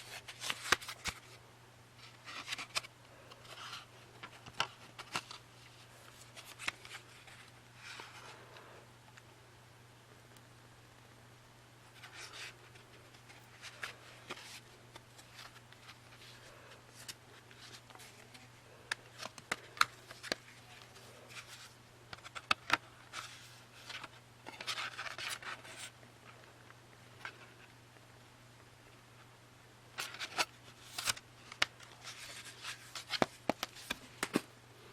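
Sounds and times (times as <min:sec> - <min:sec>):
sharp clicks of cd cases: 0:17.0 - 0:20.6, 0:21.3 - 0:25.7, 0:30.0 - 0:34.5
rustling of paper packaging: 0:30.0 - 0:34.5.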